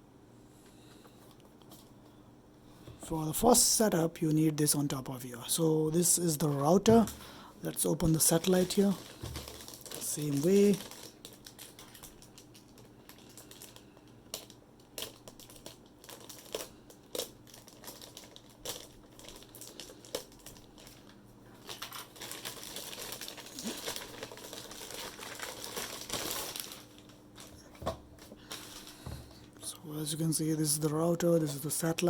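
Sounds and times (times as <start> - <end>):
plastic wrapping crinkling: 6.0 - 29.5.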